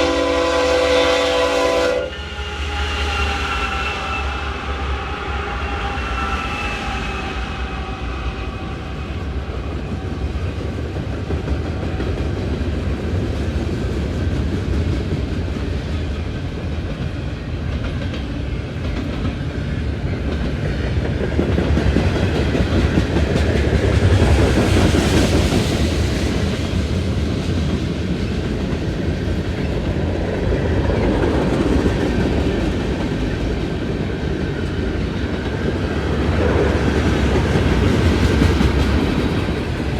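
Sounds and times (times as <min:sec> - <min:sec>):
locomotive horn: 0:00.0 - 0:09.3
freight train rumbling: 0:00.0 - 0:39.9.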